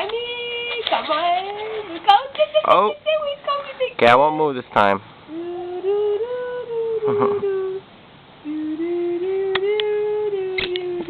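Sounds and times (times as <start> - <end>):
woman humming low notes: 5.3 - 11.0.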